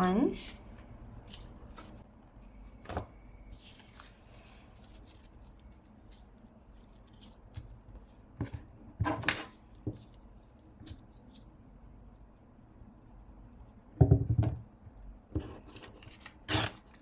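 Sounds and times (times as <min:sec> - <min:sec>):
paper rustling and crinkling: 0:00.5 - 0:02.0, 0:03.5 - 0:08.1.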